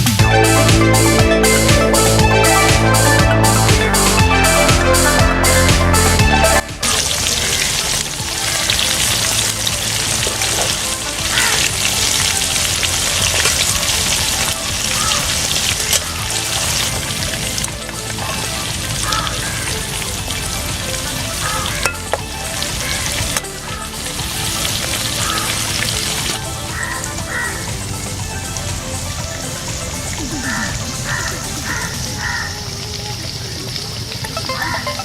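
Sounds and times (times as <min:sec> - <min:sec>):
meat sizzling in hot oil: 0:06.7 - 0:34.3.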